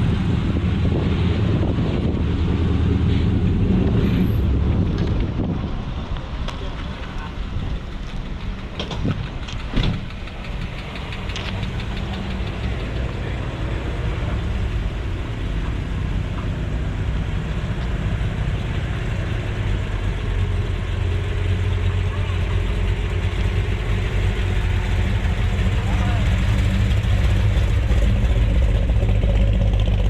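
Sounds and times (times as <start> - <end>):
car engine idling: 0.0 - 30.0
sharp clicks: 8.8 - 13.2.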